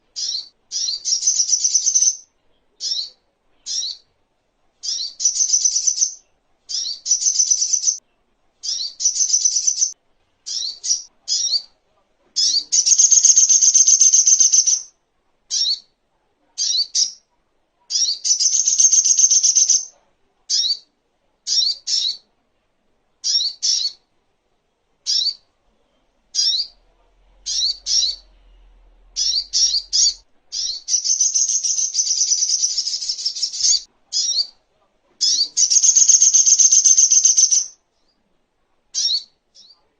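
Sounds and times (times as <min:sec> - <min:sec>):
bird chattering trills: 0:12.4 - 0:14.9, 0:18.0 - 0:19.9, 0:29.2 - 0:34.5, 0:35.2 - 0:37.8.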